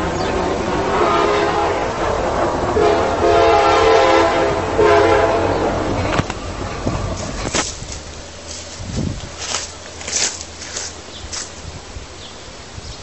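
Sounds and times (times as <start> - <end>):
passing train rumble: 0.0 - 13.0
train horn blasts: 0.8 - 6.1.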